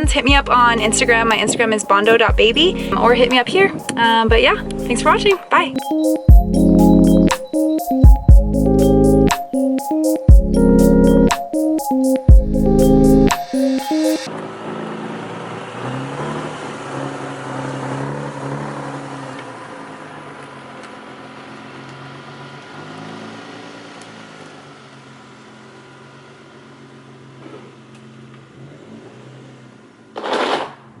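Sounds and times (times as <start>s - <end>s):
car engine revving: 0.0s - 5.3s, 14.3s - 30.0s.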